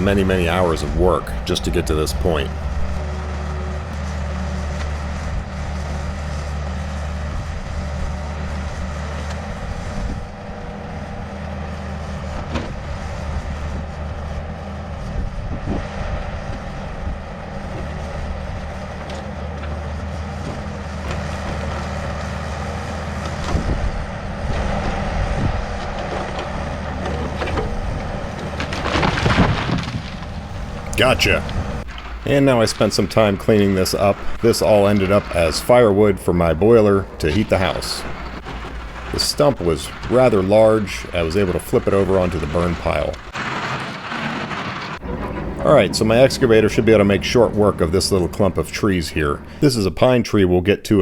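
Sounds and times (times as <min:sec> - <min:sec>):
excavator diesel engine running: 0:00.0 - 0:50.2
knocks and cracks: 0:25.7 - 0:35.5, 0:37.4 - 0:46.4.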